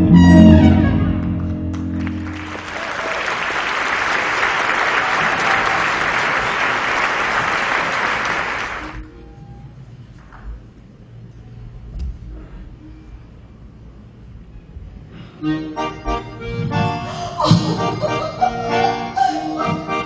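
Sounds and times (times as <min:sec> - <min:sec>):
music: 0:00.0 - 0:02.7, 0:08.9 - 0:20.0
audience applauding: 0:01.2 - 0:09.0.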